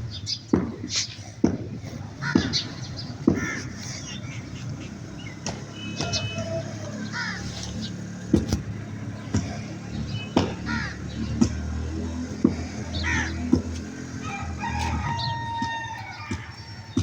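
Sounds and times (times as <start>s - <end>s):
birds harsh calls: 0.0s - 17.0s
low motor hum: 4.2s - 17.0s.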